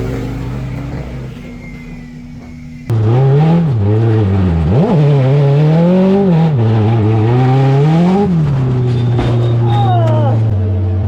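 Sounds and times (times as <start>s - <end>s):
go-kart engine revving: 0.0s - 11.0s.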